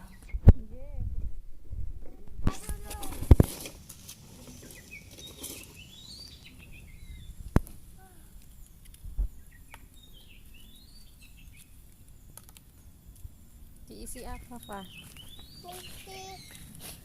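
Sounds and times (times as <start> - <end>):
bird singing: 0.0 - 0.7, 4.3 - 16.8.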